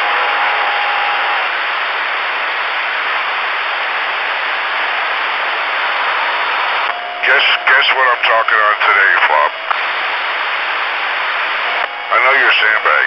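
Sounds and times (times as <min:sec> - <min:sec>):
radio static hiss: 0:00.0 - 0:13.0
faint steady tone: 0:06.8 - 0:13.0.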